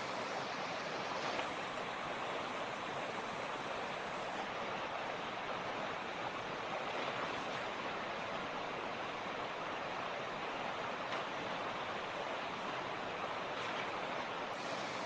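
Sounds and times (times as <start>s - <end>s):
creek flowing over rocks: 0.0s - 15.0s.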